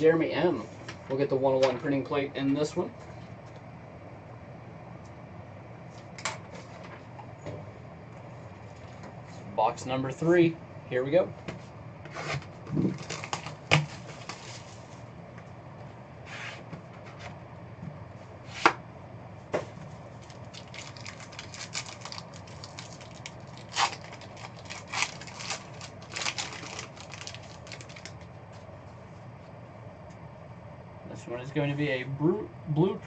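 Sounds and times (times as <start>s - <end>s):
plastic wrapping crinkling: 12.8s - 14.9s, 20.2s - 28.3s.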